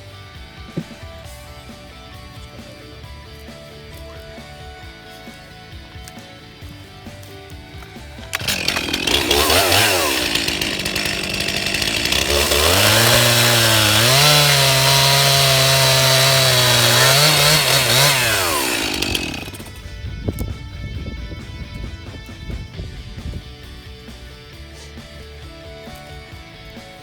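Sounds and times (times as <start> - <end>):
chainsaw engine revving: 8.2 - 19.8.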